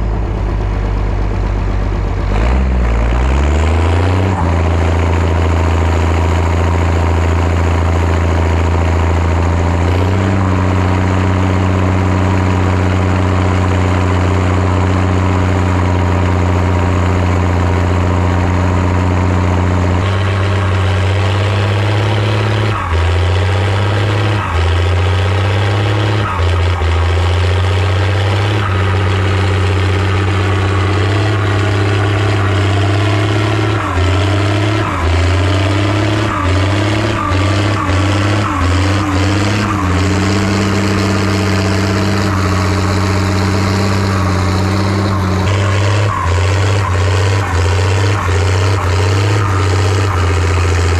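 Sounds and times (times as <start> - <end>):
tractor diesel engine running hard: 0.0 - 50.9.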